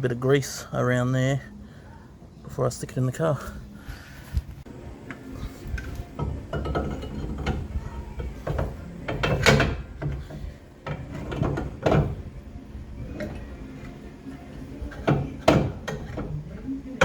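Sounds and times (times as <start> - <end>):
metal parts clunking and scraping: 5.4 - 12.4, 13.0 - 17.0.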